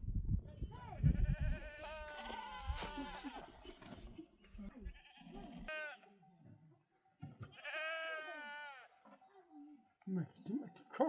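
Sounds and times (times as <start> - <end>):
goat bleating: 1.0 - 3.8, 4.4 - 6.2, 7.4 - 9.2.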